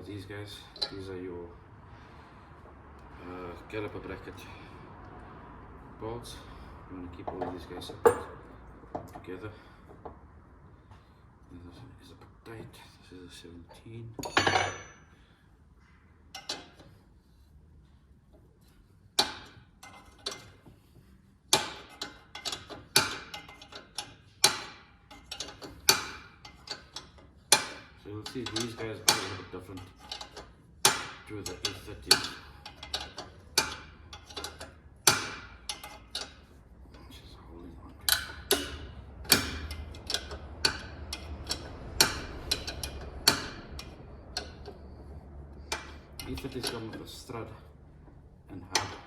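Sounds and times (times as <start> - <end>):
metal clicks of hand tools: 21.5 - 37.1, 38.0 - 47.4, 48.1 - 49.0.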